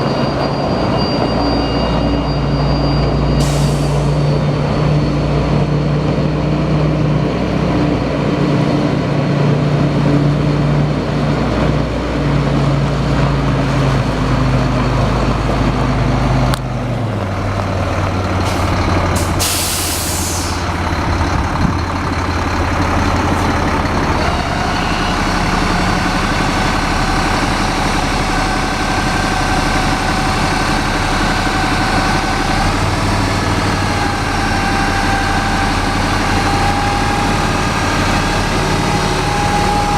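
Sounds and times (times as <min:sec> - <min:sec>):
diesel truck engine running: 0:00.1 - 0:39.9
hiss of released air: 0:19.2 - 0:20.7.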